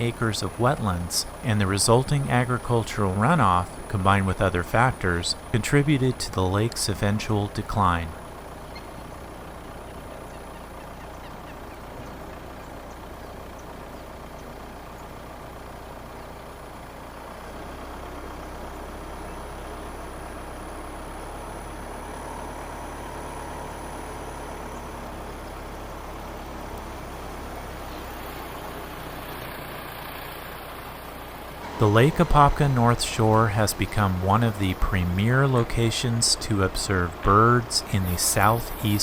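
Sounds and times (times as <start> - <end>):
car driving slowly: 0.0 - 39.0.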